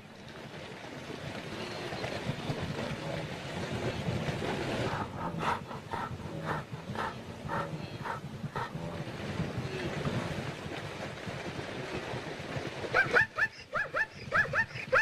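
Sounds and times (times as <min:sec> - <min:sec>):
wildebeest grunting: 0:04.9 - 0:10.1.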